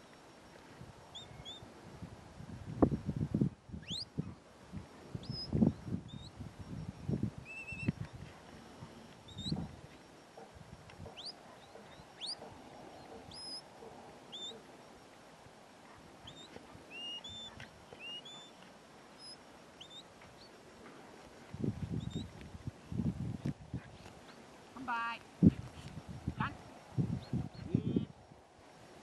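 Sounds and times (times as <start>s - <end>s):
wind rumble on microphone: 0.7s - 13.5s, 21.2s - 24.2s, 25.3s - 28.5s
small birds chirping: 1.1s - 1.7s, 3.8s - 4.4s, 5.2s - 8.3s, 9.1s - 15.0s, 15.9s - 20.7s, 21.8s - 22.5s.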